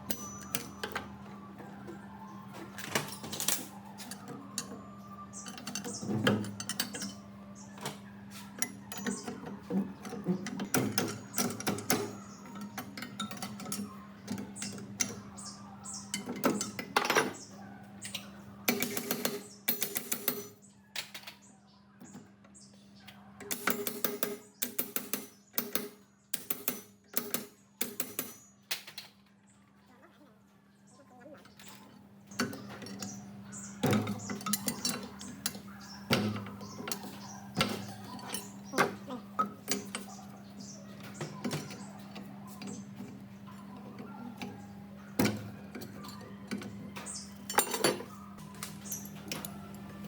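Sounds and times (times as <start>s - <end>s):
metal parts and tools clinking: 0.0s - 1.2s, 2.8s - 21.4s, 31.4s - 50.0s.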